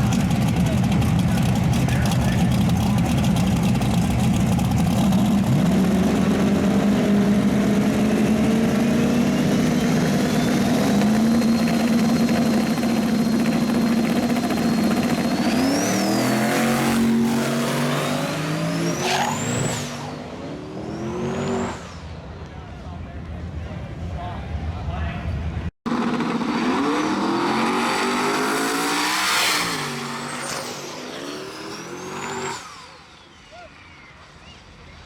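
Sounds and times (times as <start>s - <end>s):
racing car engine at high revs: 0.0s - 22.2s, 25.9s - 33.1s
high rising whines: 4.8s - 22.4s.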